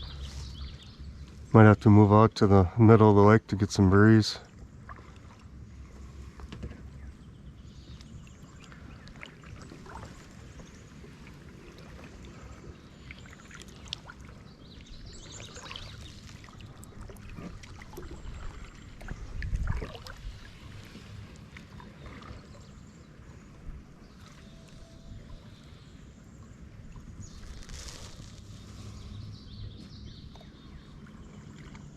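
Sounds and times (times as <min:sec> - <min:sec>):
steady low rumble: 0:00.0 - 0:11.6, 0:14.4 - 0:24.1
paddle splashing water: 0:04.4 - 0:31.9.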